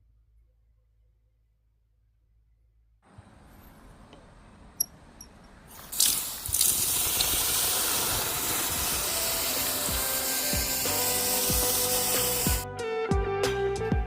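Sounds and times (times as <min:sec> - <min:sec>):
loud steady hiss: 0:05.8 - 0:12.6.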